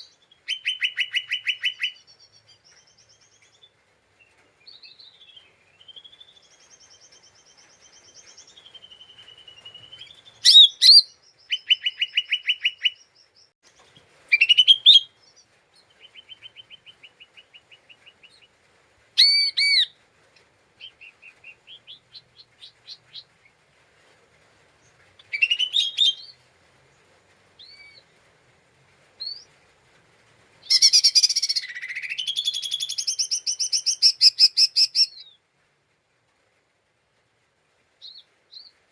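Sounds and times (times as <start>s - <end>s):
bird singing whistles and trills: 0.0s - 3.6s, 4.7s - 13.1s, 14.3s - 15.3s, 19.2s - 19.9s, 25.3s - 26.4s, 30.6s - 35.4s.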